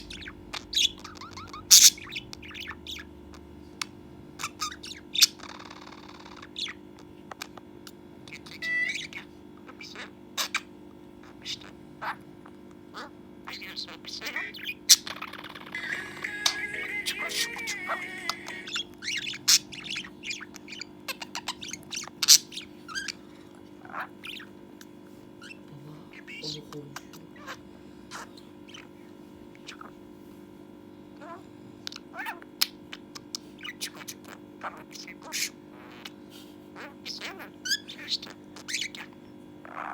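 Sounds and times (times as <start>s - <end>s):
budgerigar squawk: 0.0s - 3.1s, 8.3s - 12.2s, 12.9s - 24.5s, 33.6s - 36.2s, 36.8s - 39.9s
budgerigar chattering: 0.0s - 3.4s, 4.4s - 7.6s, 8.3s - 12.3s, 12.9s - 29.0s, 32.0s - 39.9s
buzzy rasping bird call: 13.5s - 21.5s.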